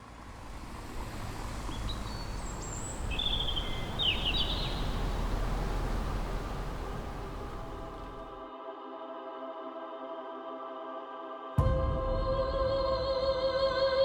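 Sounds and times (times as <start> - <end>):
bird chirps and trill: 1.6 - 8.2.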